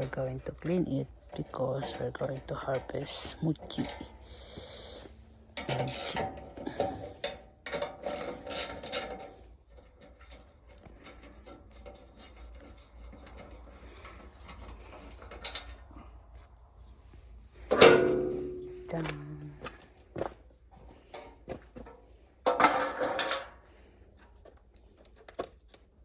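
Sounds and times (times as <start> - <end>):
scraping and rubbing: 8.0 - 16.1.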